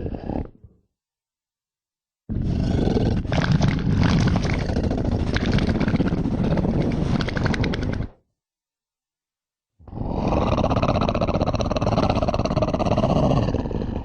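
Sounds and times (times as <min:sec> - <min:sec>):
big cat growl: 0:00.0 - 0:00.8, 0:02.3 - 0:08.2, 0:09.8 - 0:14.0.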